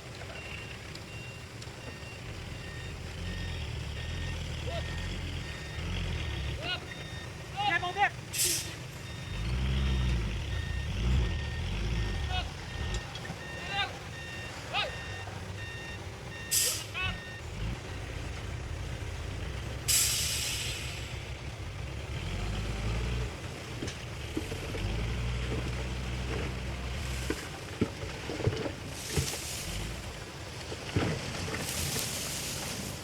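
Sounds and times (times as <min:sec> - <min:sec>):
diesel truck engine rumbling: 0:00.0 - 0:33.0
air brake hiss: 0:08.3 - 0:08.8, 0:16.5 - 0:16.9, 0:19.9 - 0:21.1.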